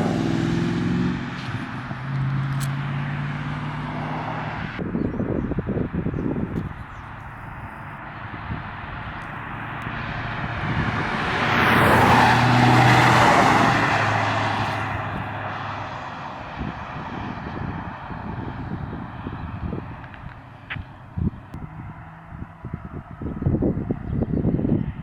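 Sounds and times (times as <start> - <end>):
car engine driving past: 8.2 - 22.9.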